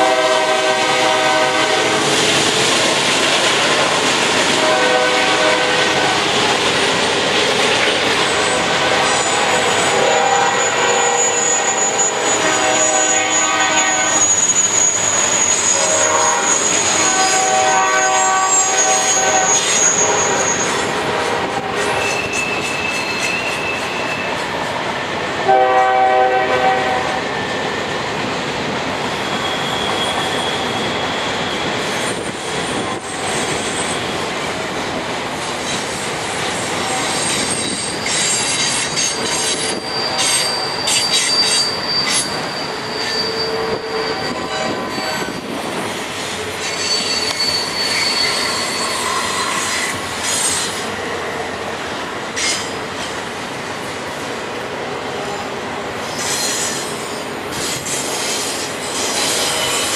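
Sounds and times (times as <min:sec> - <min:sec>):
locomotive air horn: 0:00.0 - 0:02.2, 0:04.6 - 0:06.2, 0:08.6 - 0:22.4, 0:25.4 - 0:27.3, 0:43.0 - 0:45.3, 0:59.2 - 0:59.9
train cars rumbling: 0:00.0 - 0:59.9
train wheels squealing: 0:08.2 - 0:25.2, 0:27.1 - 0:28.0, 0:29.0 - 0:34.4, 0:35.6 - 0:51.6, 0:52.3 - 0:53.2, 0:55.2 - 0:59.9.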